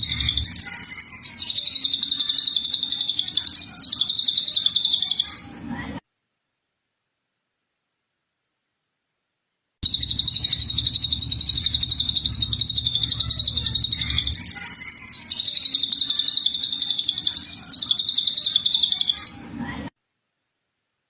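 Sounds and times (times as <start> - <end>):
songbird trilling: 0.0 - 5.4, 9.8 - 19.3.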